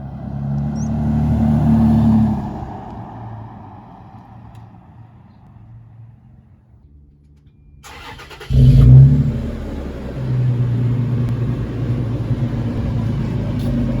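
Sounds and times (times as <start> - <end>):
car engine starter cranking: 7.8 - 10.1
car engine running with deep exhaust: 8.4 - 14.0.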